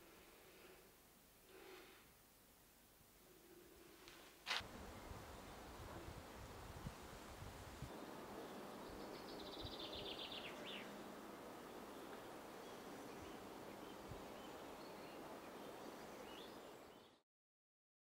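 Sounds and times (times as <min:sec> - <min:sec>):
faint outdoor ambience: 0:00.0 - 0:17.2.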